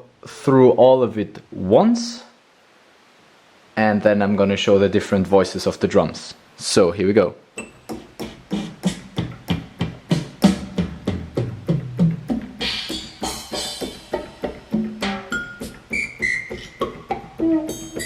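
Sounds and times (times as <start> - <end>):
keyboard drum samples: 7.6 - 18.0
pitched percussion hits: 9.6 - 18.0.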